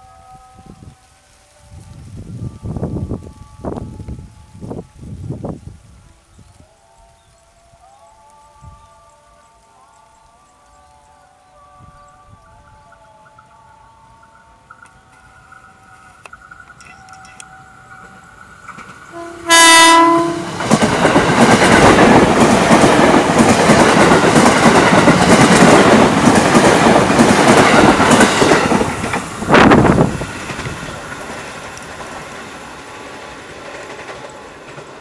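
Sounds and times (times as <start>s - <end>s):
loud rail noise: 0.0s - 35.0s
train horn blast: 19.0s - 20.9s.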